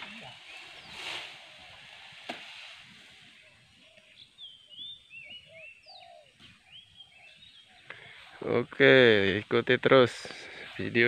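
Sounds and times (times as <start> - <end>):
birds singing whistled notes: 0.0 - 8.4.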